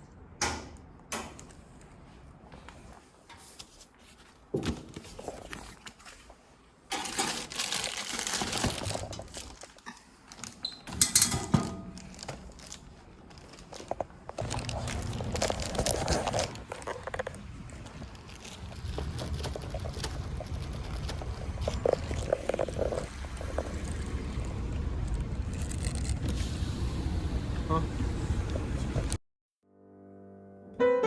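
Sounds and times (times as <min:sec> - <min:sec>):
rustling and crinkling: 0:01.7 - 0:26.2.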